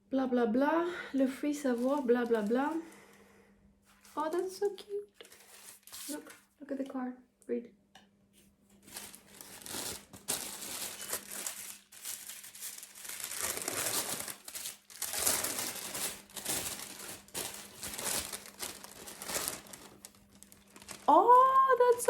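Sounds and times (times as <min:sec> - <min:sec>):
wrapping paper crinkling: 0:01.5 - 0:03.0, 0:03.9 - 0:06.4, 0:08.8 - 0:22.0.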